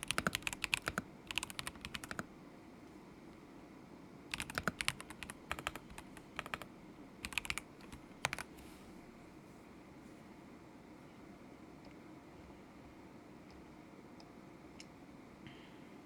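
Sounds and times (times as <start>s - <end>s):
mechanical keyboard typing: 0.0s - 2.3s, 4.3s - 8.5s.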